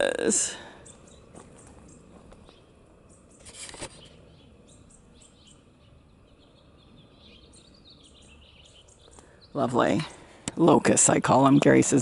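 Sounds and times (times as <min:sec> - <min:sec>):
birds chirping faintly: 0:00.0 - 0:12.0
short burst of noise: 0:03.4 - 0:04.2.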